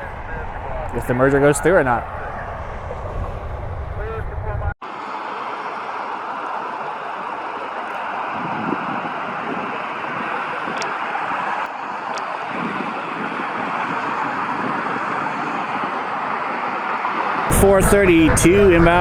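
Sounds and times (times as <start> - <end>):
jet engines roaring: 0.0 - 4.8, 17.5 - 19.0.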